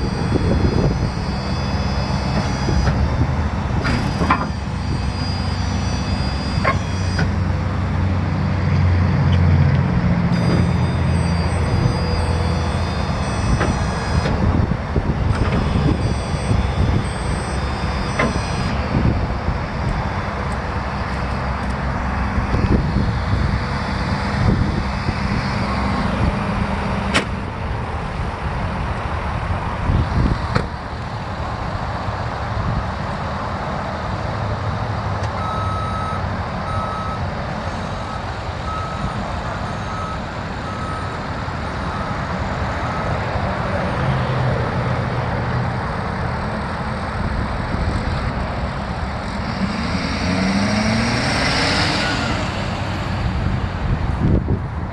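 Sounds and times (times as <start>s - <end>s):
warning beeper: 0.0s - 9.3s, 10.2s - 27.5s, 35.4s - 44.2s, 48.6s - 53.9s
diesel engine running: 0.0s - 54.9s.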